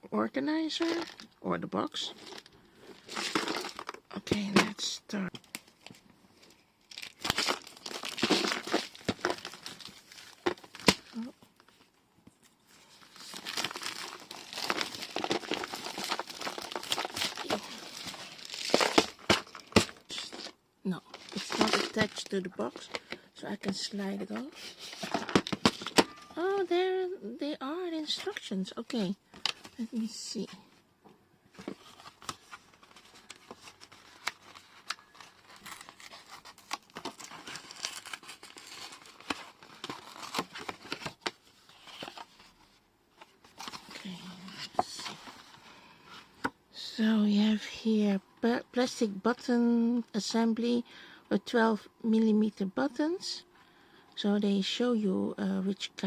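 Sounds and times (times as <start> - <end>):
packaging crinkling and rustling: 2.2 - 4.5, 5.3 - 11.9, 12.7 - 23.9, 24.5 - 26.2, 31.5 - 45.6.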